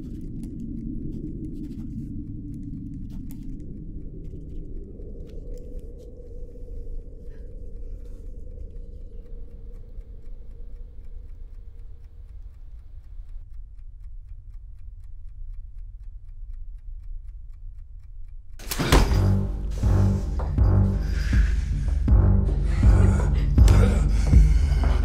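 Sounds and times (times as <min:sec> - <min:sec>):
low steady drone: 0:00.0 - 0:16.2, 0:18.7 - 0:25.0
fast regular ticking: 0:00.0 - 0:18.7.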